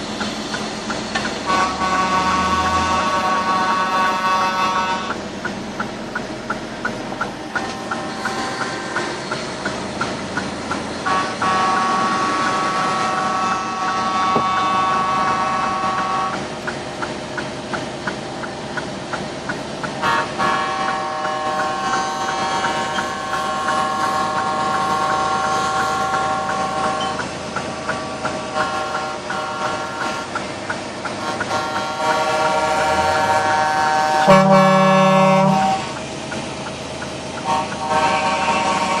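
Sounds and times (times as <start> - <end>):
truck air horns: 1.2 - 5.2, 7.4 - 9.4, 11.0 - 16.5, 19.9 - 36.0, 37.4 - 39.0.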